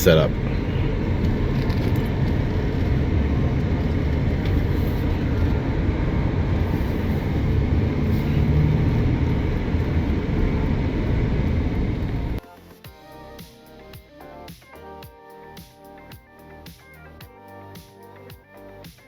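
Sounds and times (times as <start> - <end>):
road and engine rumble: 0.0 - 12.4.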